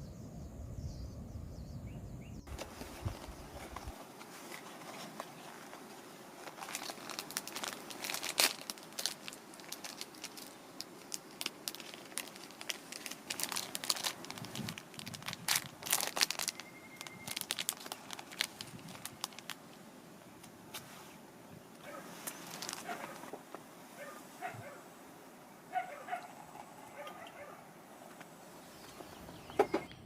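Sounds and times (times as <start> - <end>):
crinkling and crackling: 2.5 - 24.8.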